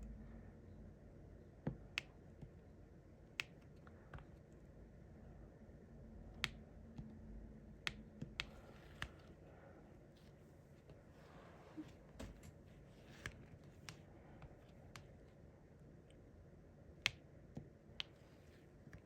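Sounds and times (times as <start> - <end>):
small clicks and taps: 3.3 - 4.6, 7.8 - 9.3, 12.2 - 15.4, 17.0 - 19.0.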